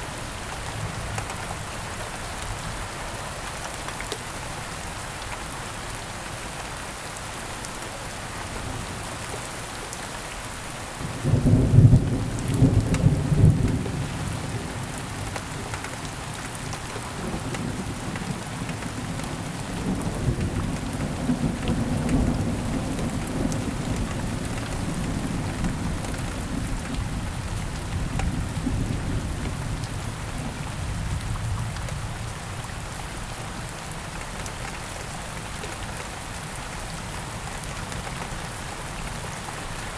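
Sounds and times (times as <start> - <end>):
heavy rain falling: 0.0 - 39.9
thunder clap and rumble: 11.2 - 15.2.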